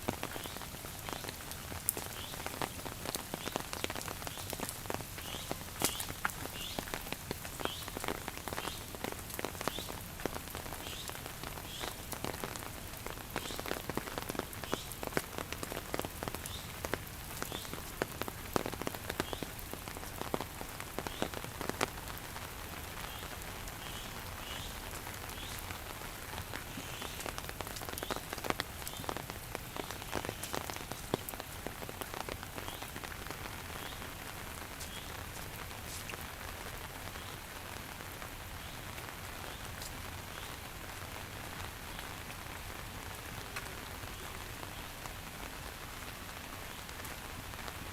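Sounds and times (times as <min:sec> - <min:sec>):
heavy raindrops tapping: 0:00.1 - 0:38.2.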